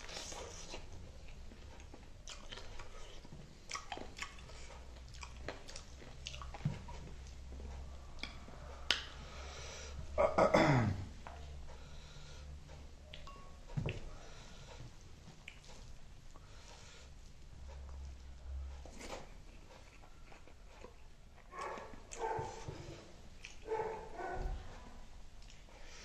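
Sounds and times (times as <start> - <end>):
close-up chewing: 0.0 - 9.1, 13.1 - 24.1.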